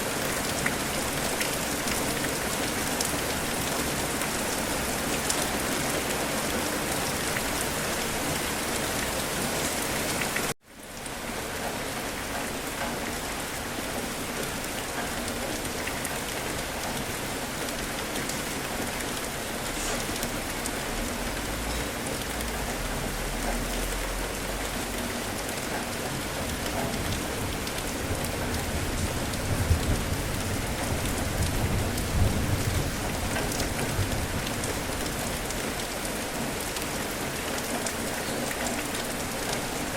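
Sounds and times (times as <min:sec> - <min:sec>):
heavy rain hitting surfaces: 0:00.0 - 0:39.9
low thunder rumbles: 0:26.3 - 0:35.6.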